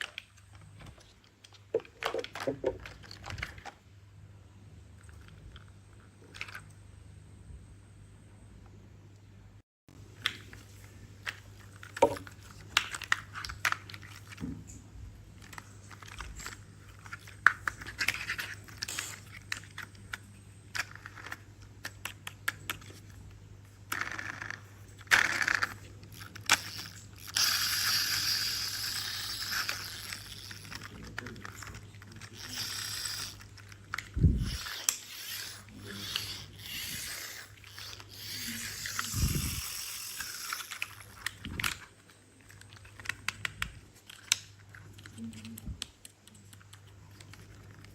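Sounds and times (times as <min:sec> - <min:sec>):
plastic toys clicking: 0:00.0 - 0:03.8, 0:15.4 - 0:23.2, 0:23.9 - 0:47.9.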